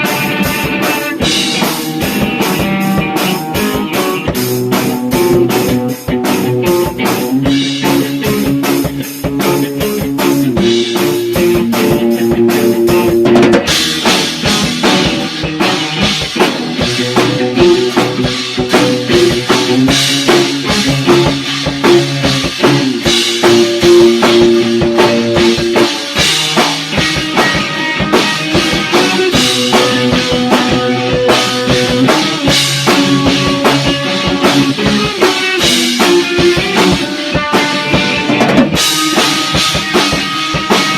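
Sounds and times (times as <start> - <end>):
bass guitar: 0.0 - 40.9
drum kit beat: 0.0 - 40.9
electric guitar: 0.0 - 40.9.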